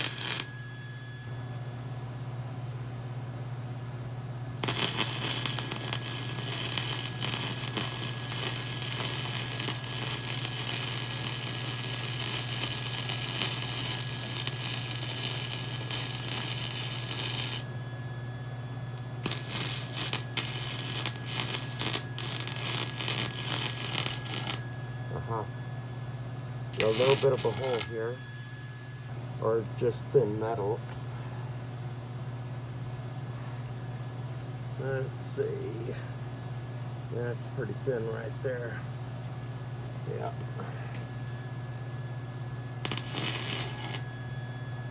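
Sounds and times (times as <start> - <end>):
welding arc crackling and sizzling: 0.0 - 0.6, 4.6 - 18.0, 19.0 - 24.7, 26.8 - 28.2, 42.8 - 44.4
low hum: 0.0 - 2.5, 4.5 - 29.4.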